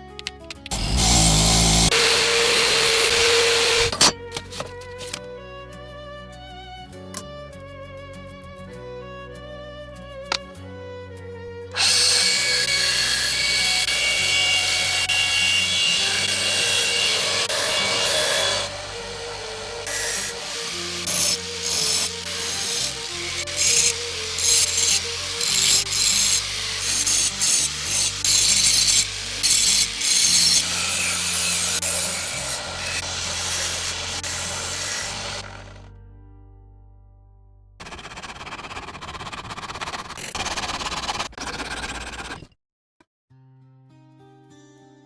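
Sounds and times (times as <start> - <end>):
soft background music: 0.0 - 37.8
power tool sanding whine: 0.7 - 4.1, 11.8 - 35.9.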